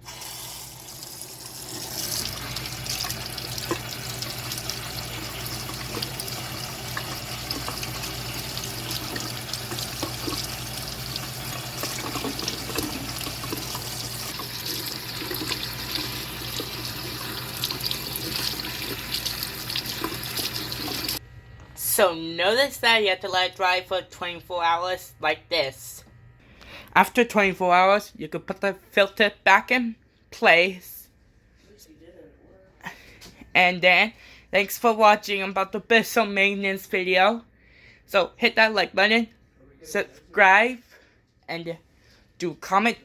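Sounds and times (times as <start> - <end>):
tap water running into a sink: 0.0 - 21.2
water splashing: 0.0 - 21.2.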